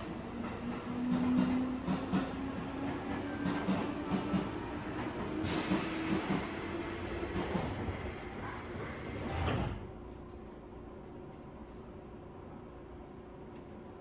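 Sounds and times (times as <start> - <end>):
loud air hiss: 5.4 - 9.3.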